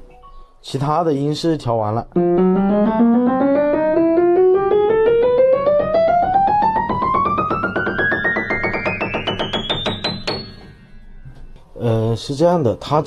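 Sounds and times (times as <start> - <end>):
piano rising run: 2.2 - 11.4.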